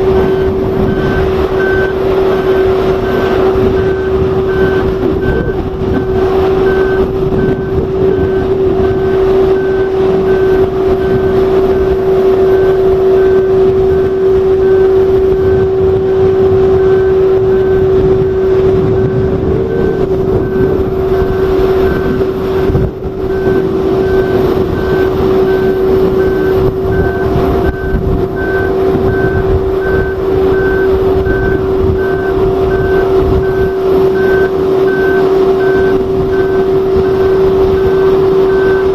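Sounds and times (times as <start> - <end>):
heavy machine engine droning: 0.0 - 38.9
warning alarm beeps: 0.0 - 38.9.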